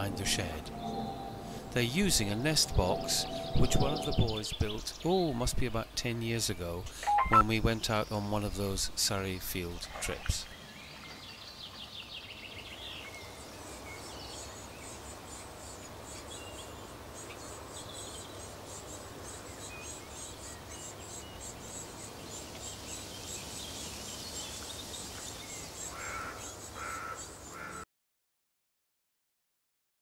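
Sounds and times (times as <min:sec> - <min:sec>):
outdoor background noise: 0:00.0 - 0:27.8
small birds chirping: 0:06.8 - 0:27.8.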